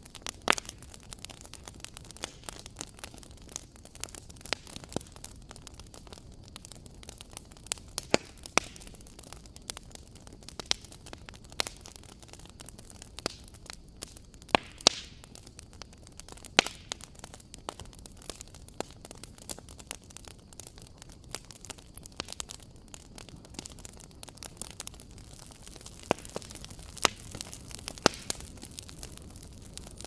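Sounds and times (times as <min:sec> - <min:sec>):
fire crackling in fireplace: 0:00.0 - 0:30.0.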